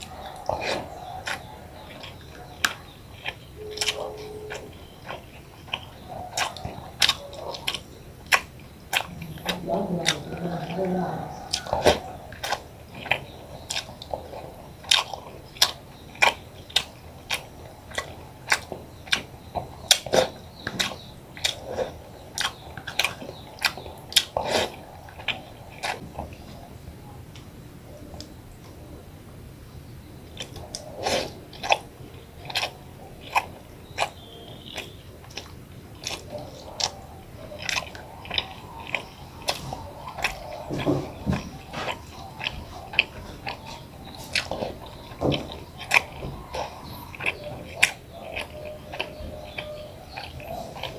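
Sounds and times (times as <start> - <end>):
chewing and mouth smacking: 0.0 - 28.4, 30.3 - 50.9.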